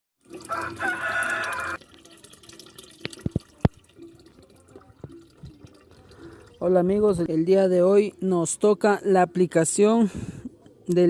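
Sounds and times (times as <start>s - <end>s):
water drops plinking: 0.3s - 6.8s.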